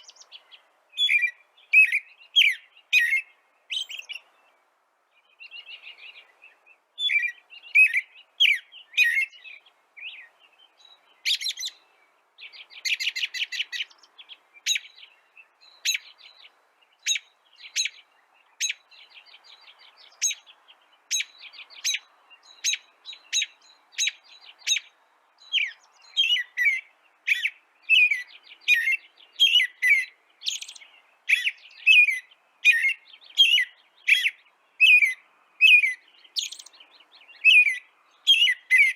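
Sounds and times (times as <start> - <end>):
bird trills: 0.0 - 4.3, 12.5 - 20.5, 21.1 - 38.9
birds chirping: 0.0 - 38.9.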